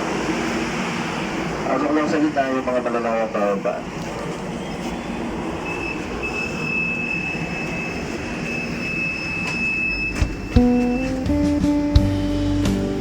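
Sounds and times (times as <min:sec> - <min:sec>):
high train squeal: 0:00.0 - 0:11.9
metro train rumbling: 0:00.0 - 0:13.0
music: 0:10.6 - 0:13.0.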